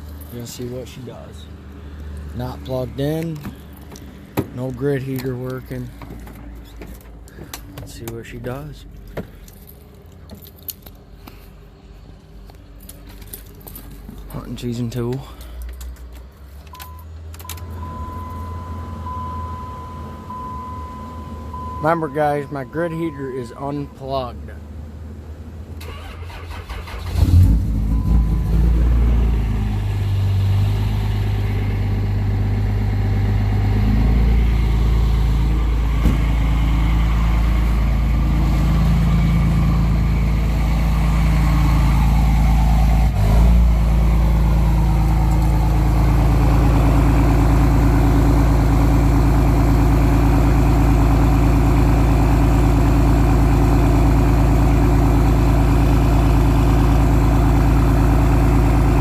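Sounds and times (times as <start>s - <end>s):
diesel engine idling: 16.8s - 59.0s.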